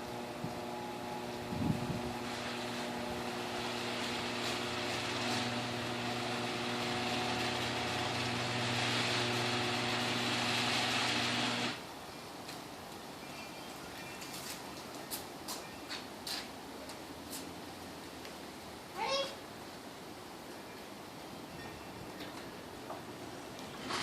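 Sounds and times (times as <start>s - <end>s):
garage door opener motor hum: 0.0s - 11.8s
garage door moving: 2.1s - 11.8s.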